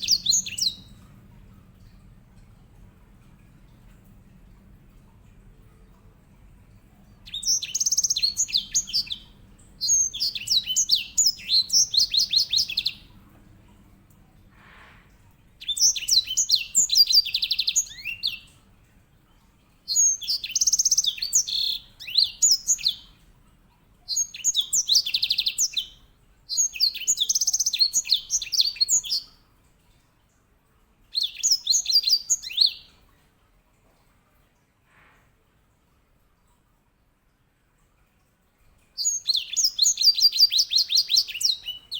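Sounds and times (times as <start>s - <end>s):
finch singing rolling trills: 0.0s - 1.0s, 7.3s - 13.0s, 15.6s - 18.5s, 19.9s - 23.1s, 39.0s - 41.9s.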